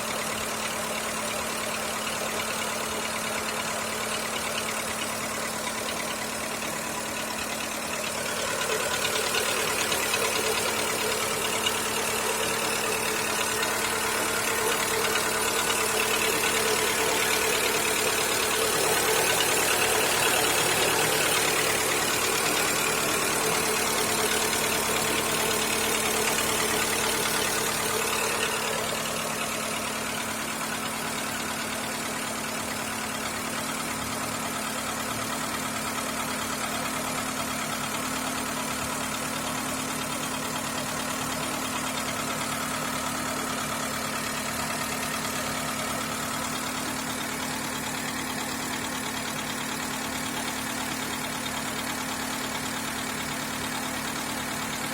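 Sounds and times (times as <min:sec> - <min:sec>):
car engine idling with knock: 0:00.0 - 0:54.9.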